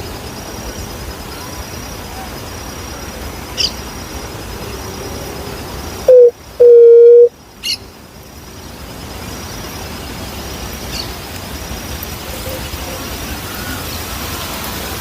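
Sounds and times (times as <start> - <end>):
dove hooting: 6.1 - 7.3
small bird chirping: 6.1 - 7.8.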